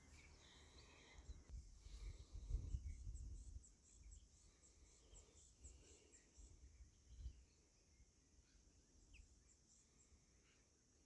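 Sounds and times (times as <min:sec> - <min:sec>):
distant birds chirping: 0:00.0 - 0:02.2.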